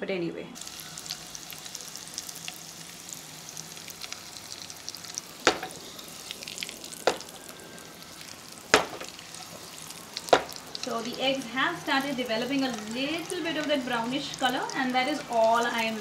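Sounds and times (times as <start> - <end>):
eggs sizzling in oil: 0.6 - 16.0
pan knocking: 5.4 - 5.8, 7.0 - 7.2, 8.7 - 9.1, 10.3 - 10.6.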